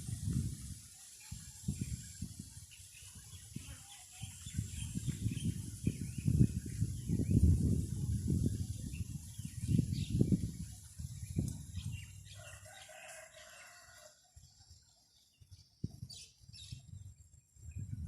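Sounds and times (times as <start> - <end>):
wind buffeting microphone: 0.0 - 14.8, 15.4 - 18.0
rooster crowing: 12.3 - 14.2.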